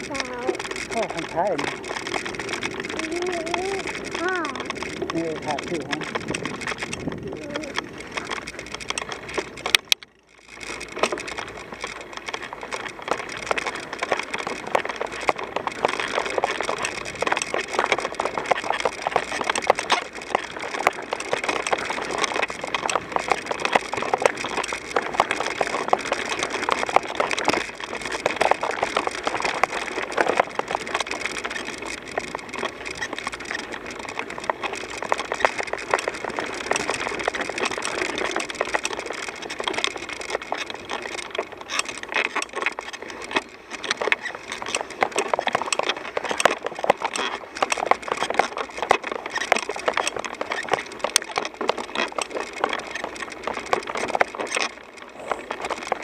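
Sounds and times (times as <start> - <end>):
bicycle tyres crunching on gravel: 0.0 - 56.0.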